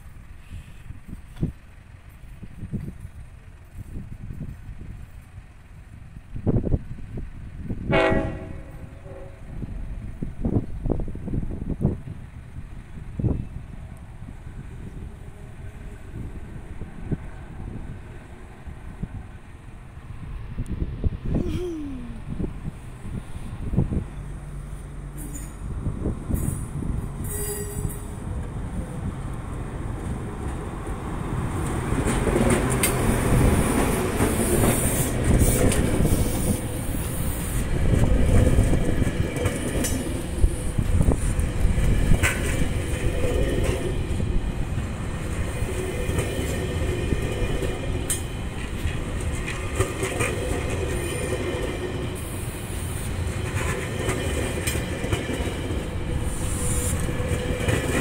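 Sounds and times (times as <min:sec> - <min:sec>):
train rumbling past: 0:00.0 - 0:58.0
train wheels clattering over rails: 0:25.1 - 0:58.0.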